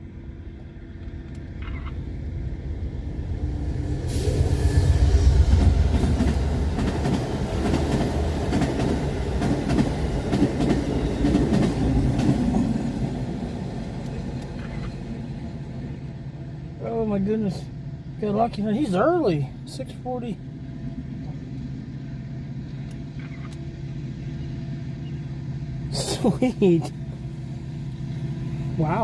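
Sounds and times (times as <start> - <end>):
train passing with low rumble: 0.0 - 29.0.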